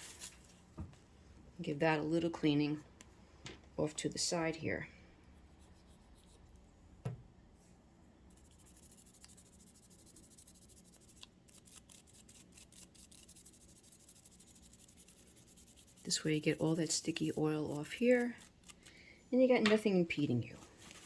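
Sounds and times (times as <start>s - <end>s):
toothbrush scrubbing metal: 8.3s - 18.9s.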